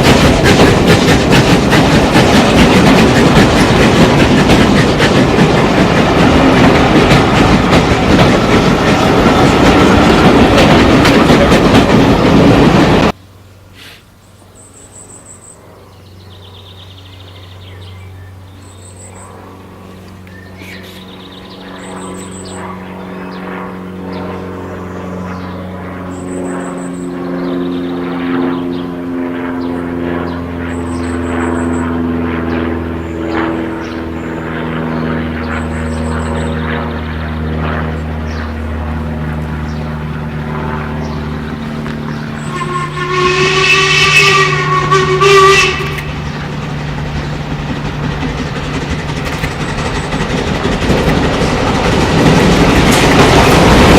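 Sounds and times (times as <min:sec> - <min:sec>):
train engine drone: 0:00.0 - 0:53.9.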